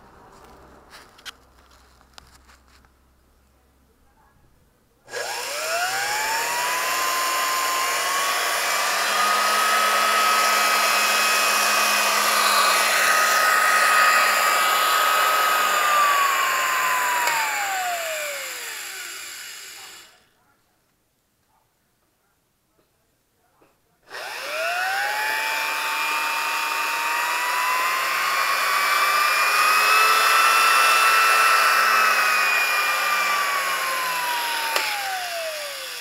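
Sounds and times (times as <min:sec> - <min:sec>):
blender motor whine: 0:05.1 - 0:20.2, 0:24.1 - 0:36.0.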